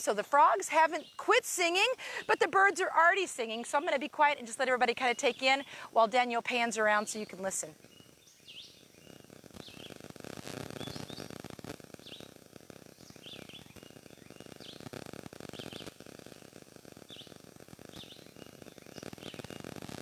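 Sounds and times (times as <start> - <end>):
low background noise: 0.0 - 20.0
birds chirping: 3.5 - 10.0, 10.7 - 11.4, 12.0 - 14.9, 15.5 - 15.9, 17.1 - 19.8.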